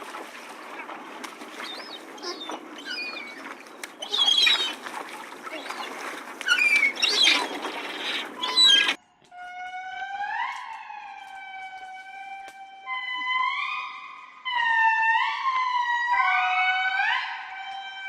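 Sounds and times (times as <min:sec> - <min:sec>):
animal squawking calls: 0:01.6 - 0:04.9, 0:05.5 - 0:09.0.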